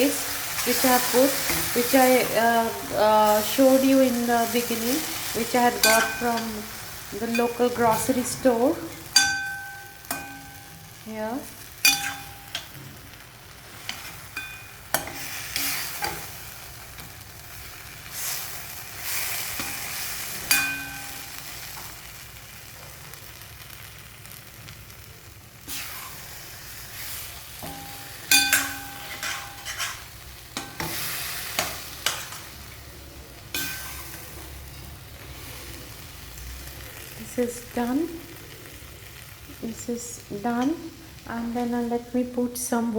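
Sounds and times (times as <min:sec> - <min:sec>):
food sizzling in a pan: 0:00.0 - 0:42.9
utensil clinking and scraping pan: 0:05.5 - 0:06.6, 0:07.2 - 0:10.8, 0:11.8 - 0:12.8, 0:27.6 - 0:32.5, 0:33.5 - 0:34.2.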